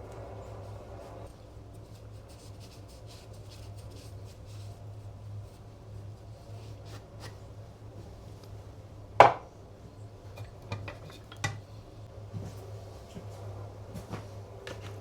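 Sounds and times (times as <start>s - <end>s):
steady low hum: 0.0s - 15.0s
hard objects clacking on workbench: 9.2s - 9.5s, 10.4s - 11.6s.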